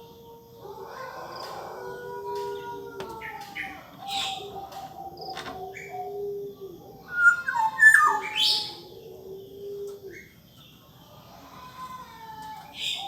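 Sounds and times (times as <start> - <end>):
oriole chirps and whistles: 7.1 - 8.9.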